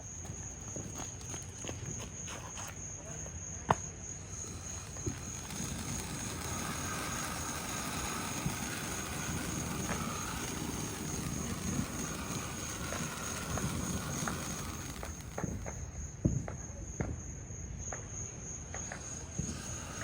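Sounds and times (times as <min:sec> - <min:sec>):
crickets chirping: 0:00.0 - 0:20.0
firework fountain hissing: 0:04.2 - 0:16.6, 0:18.8 - 0:20.0
faint crackles: 0:04.3 - 0:16.0, 0:18.8 - 0:20.0.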